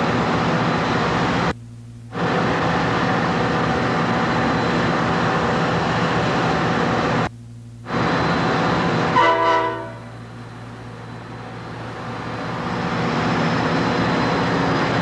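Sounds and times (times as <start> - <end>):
diesel locomotive running: 0.0 - 15.0
train horn blast: 9.1 - 10.3.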